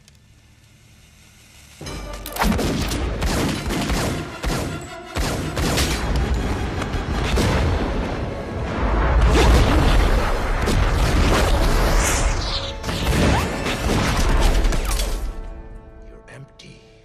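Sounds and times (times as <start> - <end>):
dramatic film score: 1.8 - 17.0
rapid gunfire: 2.4 - 6.1.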